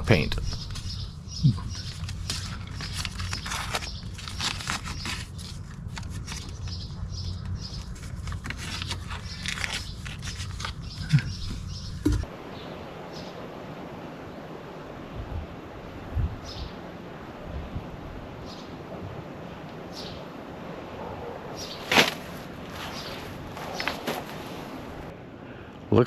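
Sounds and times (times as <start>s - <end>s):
wind noise on microphone: 0.0s - 1.7s, 15.0s - 19.2s
steady low hum: 0.0s - 2.3s
tape ripping off roll: 21.8s - 22.4s.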